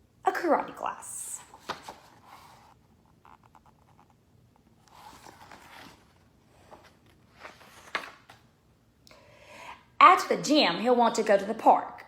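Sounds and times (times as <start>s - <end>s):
paper rustling: 1.4s - 8.5s.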